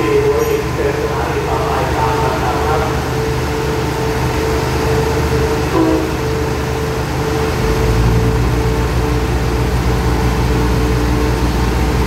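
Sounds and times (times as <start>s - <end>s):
diesel train engine hum: 0.0s - 12.0s.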